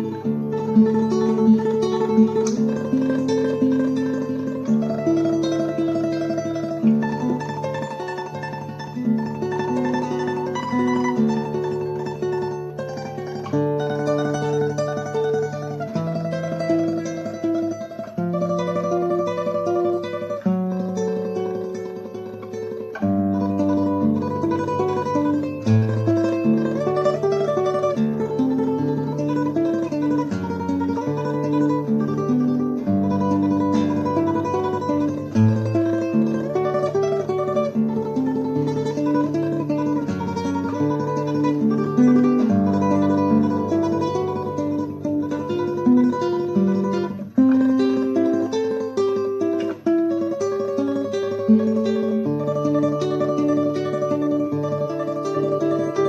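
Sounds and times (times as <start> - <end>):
classical guitar tremolo: 0.0 - 56.0.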